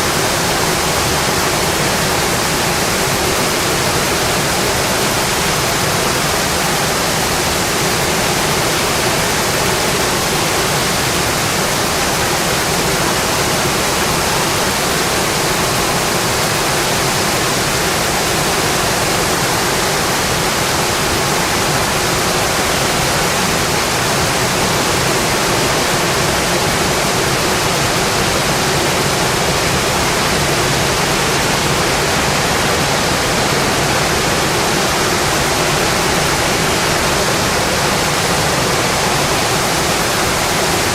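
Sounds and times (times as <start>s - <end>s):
rain on a windowpane: 0.0s - 40.9s.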